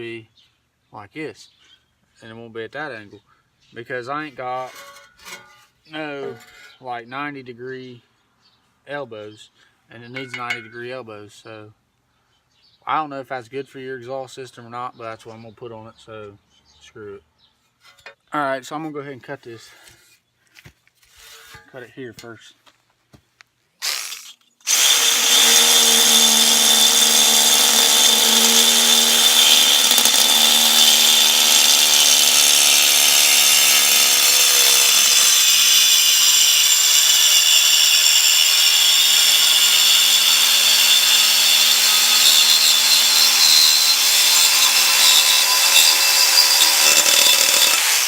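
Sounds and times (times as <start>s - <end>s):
harsh hissing metal cutting: 23.8s - 48.0s
power tool motor whine: 23.8s - 48.0s.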